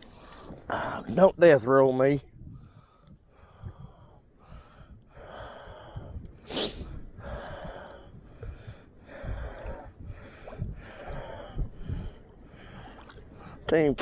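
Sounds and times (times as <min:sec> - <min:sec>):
wind rumbling on microphone: 0:00.0 - 0:14.0
man breathing hard: 0:02.5 - 0:13.7.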